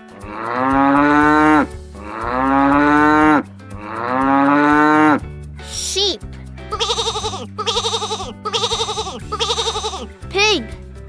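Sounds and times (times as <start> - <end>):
quiet backing track: 0.0 - 11.0
cow mooing: 0.2 - 5.2.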